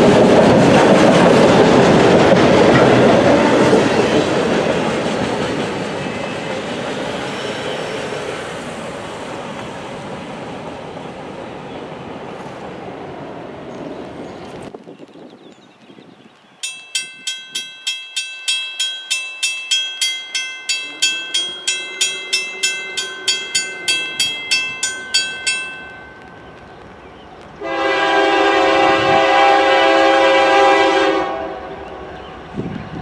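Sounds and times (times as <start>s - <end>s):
bell ringing rapidly: 16.6s - 26.5s
locomotive air horn blast: 27.6s - 31.8s.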